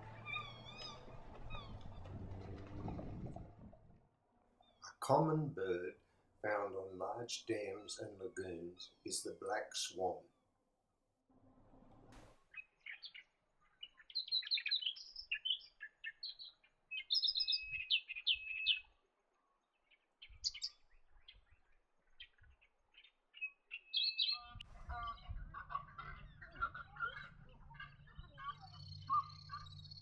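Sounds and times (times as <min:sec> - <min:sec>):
harsh bird calling: 0:00.0 - 0:03.3, 0:13.8 - 0:18.9, 0:22.2 - 0:25.3
low rumble: 0:00.0 - 0:04.0
birds chirping and twittering: 0:00.0 - 0:10.6, 0:12.1 - 0:30.0.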